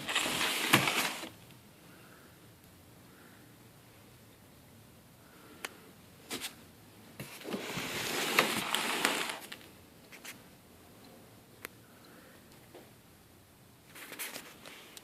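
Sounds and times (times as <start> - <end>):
packaging rustling and scraping: 0.0 - 1.4, 7.2 - 9.7.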